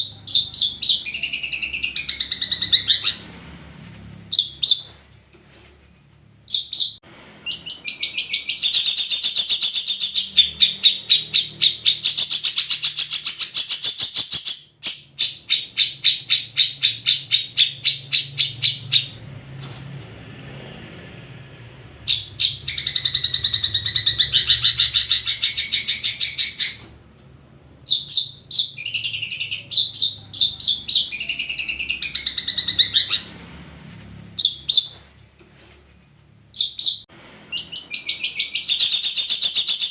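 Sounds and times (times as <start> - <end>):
bird chattering song: 0.0 - 3.3, 4.3 - 4.9, 6.5 - 19.2, 22.1 - 26.9, 27.8 - 33.4, 36.5 - 39.9.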